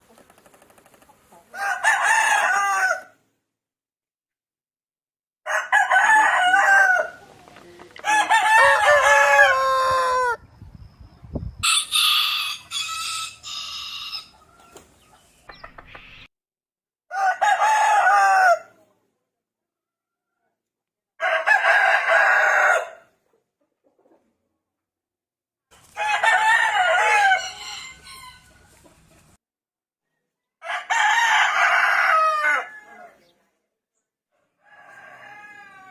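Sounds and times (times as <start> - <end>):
rooster crowing: 1.6 - 3.2, 5.4 - 7.2, 8.0 - 10.4, 11.6 - 14.3, 17.1 - 18.7, 21.2 - 23.0, 26.0 - 28.6, 30.6 - 33.2, 34.4 - 35.9.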